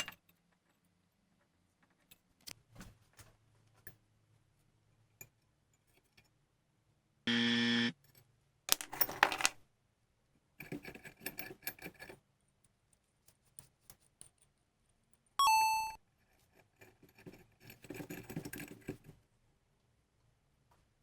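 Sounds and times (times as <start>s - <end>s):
metal parts clinking: 0.0s - 0.2s, 8.7s - 9.6s.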